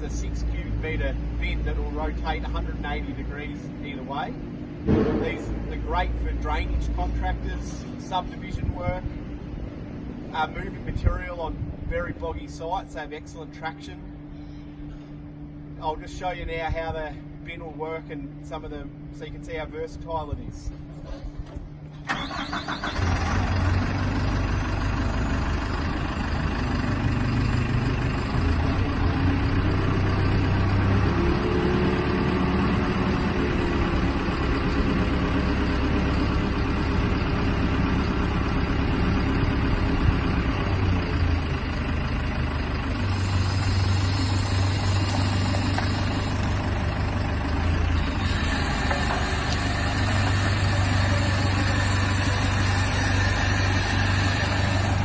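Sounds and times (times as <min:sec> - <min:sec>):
diesel engine running: 0:00.0 - 0:55.0
hydraulic whine: 0:20.9 - 0:23.8, 0:42.5 - 0:55.0.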